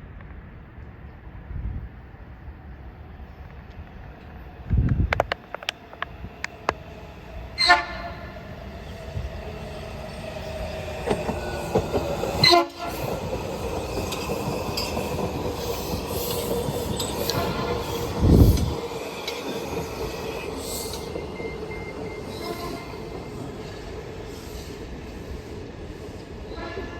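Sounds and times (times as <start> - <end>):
rumble of train wheels: 0.0 - 26.9
train whine: 1.3 - 26.9
train horn blasts: 7.6 - 8.4, 12.4 - 13.1, 17.2 - 18.4, 22.3 - 23.1, 26.5 - 26.9.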